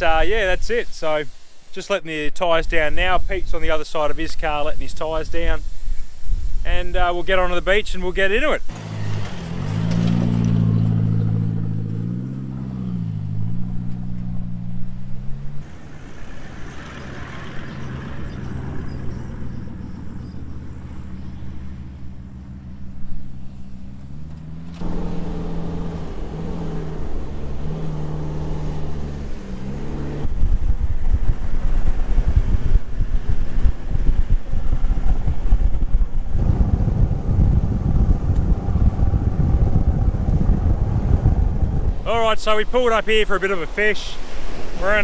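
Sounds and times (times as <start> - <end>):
vehicle engines running at low revs: 0.0 - 45.0
wind buffeting on microphone: 2.6 - 13.6, 24.8 - 43.0.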